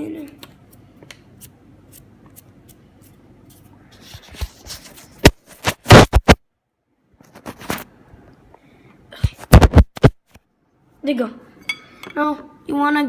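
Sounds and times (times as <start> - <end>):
scratchy scrapes: 3.5 - 6.1.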